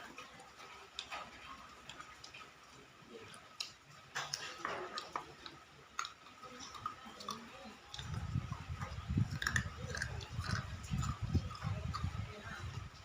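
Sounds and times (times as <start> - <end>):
person chewing: 3.2 - 12.6.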